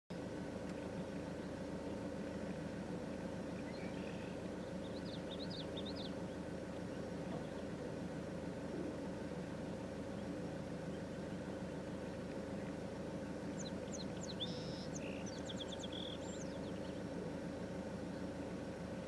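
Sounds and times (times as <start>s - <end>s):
faint hum: 0.1s - 19.0s
small bird chirping and trilling: 3.6s - 7.1s, 13.5s - 17.0s.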